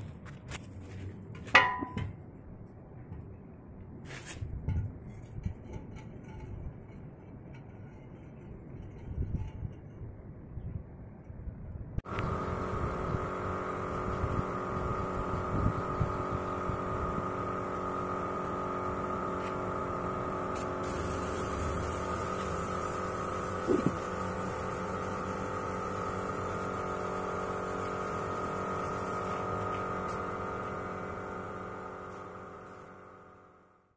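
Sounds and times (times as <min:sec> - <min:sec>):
grass chopper machine humming: 0:12.1 - 0:33.7.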